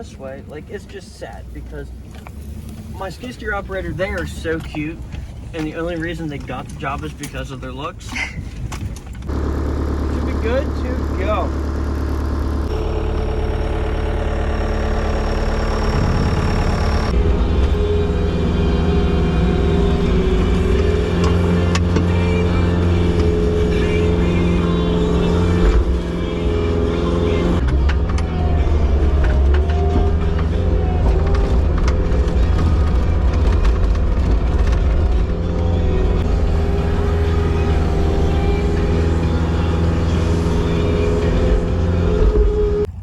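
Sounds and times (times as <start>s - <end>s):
skid steer engine under load: 9.2s - 43.0s.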